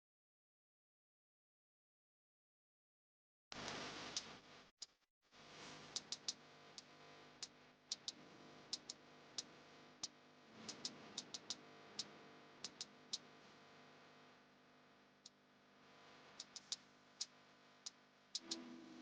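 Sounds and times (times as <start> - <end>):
faint sharp ticks: 3.6 - 4.4, 5.9 - 13.3, 16.3 - 18.6.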